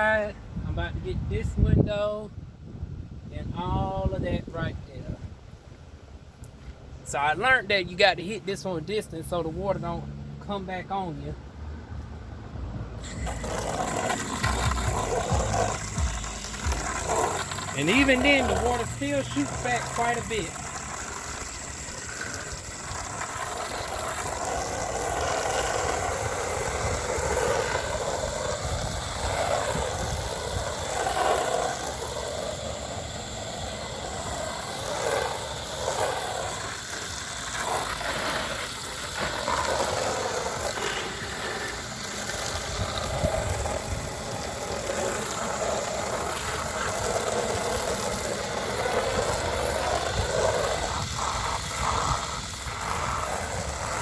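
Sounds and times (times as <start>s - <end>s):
pressure washer motor hum: 13.0s - 54.0s
water spray hissing on siding: 13.0s - 54.0s.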